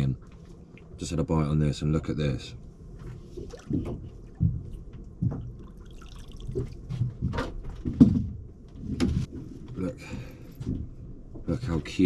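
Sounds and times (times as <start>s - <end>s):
water dripping and splattering: 5.6s - 6.8s.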